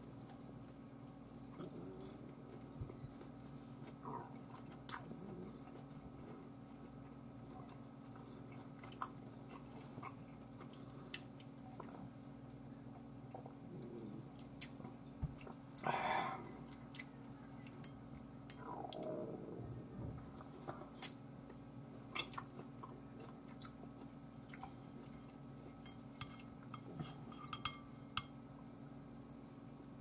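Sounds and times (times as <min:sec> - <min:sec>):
steady low hum: 0:00.0 - 0:30.0
close-up chewing: 0:01.4 - 0:12.2, 0:12.9 - 0:15.9, 0:16.5 - 0:19.2, 0:20.2 - 0:27.3.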